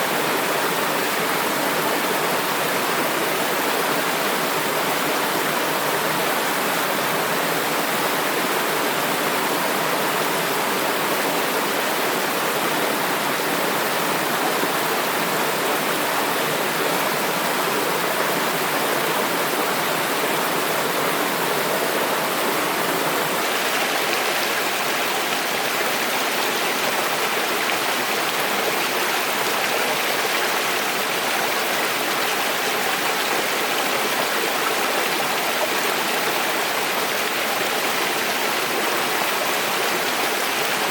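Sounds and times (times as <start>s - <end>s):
water rushing: 12.5s - 40.9s.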